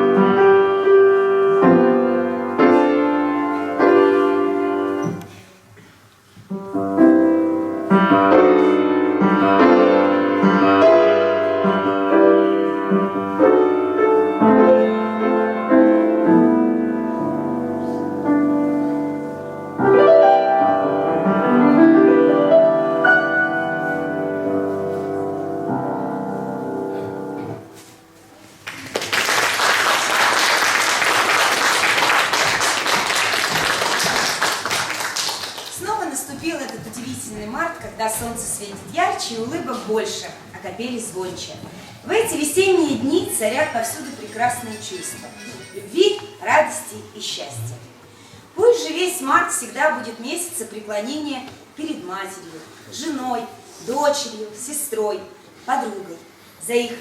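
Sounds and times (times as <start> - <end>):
piano piece: 0.0 - 5.4, 6.5 - 48.0.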